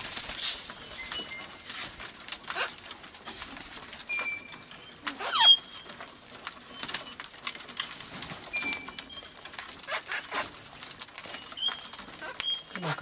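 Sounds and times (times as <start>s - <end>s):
small clicks: 0.0s - 13.0s
parrot squawk: 2.5s - 2.8s, 5.2s - 5.7s
parrot high whistles: 5.2s - 5.7s.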